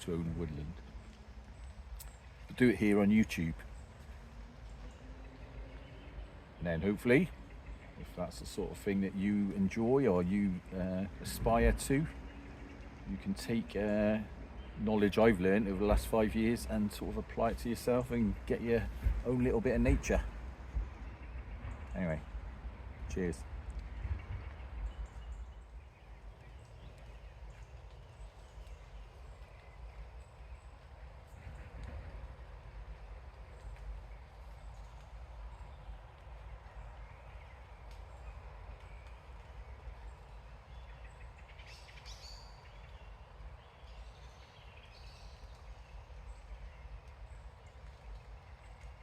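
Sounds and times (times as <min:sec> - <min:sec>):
wind rumble on microphone: 0:00.0 - 0:49.0
woodland birds singing: 0:00.0 - 0:49.0
faint ticks: 0:23.6 - 0:40.3, 0:45.3 - 0:49.0.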